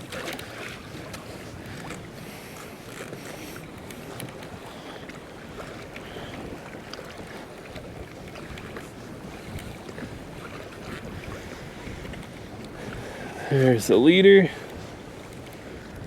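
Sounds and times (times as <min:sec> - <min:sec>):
water slapping against hull: 0:00.0 - 0:16.0
wind buffeting microphone: 0:04.0 - 0:16.0.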